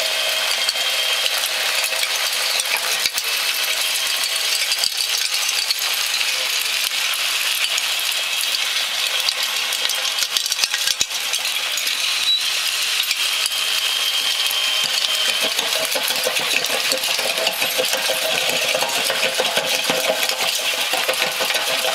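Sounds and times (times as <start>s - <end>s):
gravel rattling in excavator buckets: 1.5s - 13.2s, 14.8s - 21.9s
machine mechanism running: 9.8s - 21.9s.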